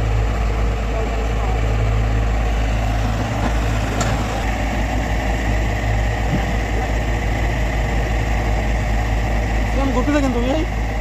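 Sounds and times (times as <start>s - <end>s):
excavator diesel engine droning: 0.0s - 11.0s.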